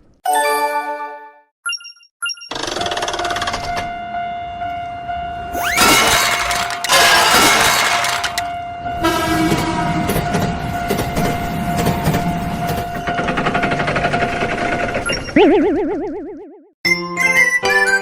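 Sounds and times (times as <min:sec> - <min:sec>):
train passing: 0:03.7 - 0:15.1
train wheels clattering: 0:05.6 - 0:08.6, 0:09.5 - 0:15.1.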